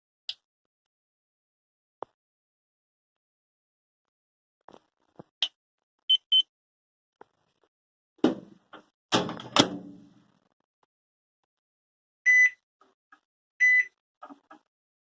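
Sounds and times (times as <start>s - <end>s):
microwave door clunks: 8.2s - 8.5s, 9.1s - 10.0s
microwave short high beeps: 12.3s - 12.6s, 13.6s - 14.0s.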